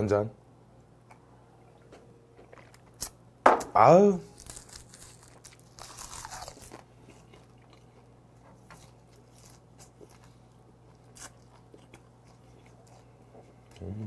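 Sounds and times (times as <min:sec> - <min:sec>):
chewing with faint clicks: 0:06.7 - 0:14.0.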